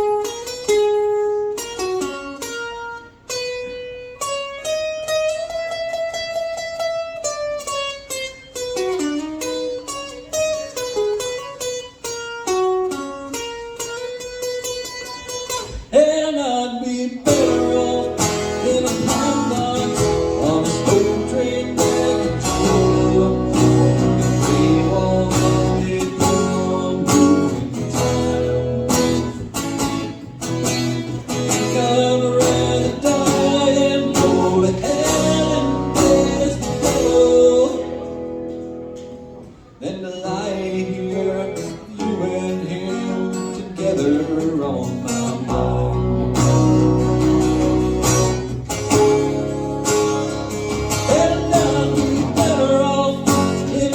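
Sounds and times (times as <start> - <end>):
acoustic guitar playing: 0.0 - 53.9
person singing: 15.9 - 29.4, 31.3 - 38.6, 50.8 - 53.9.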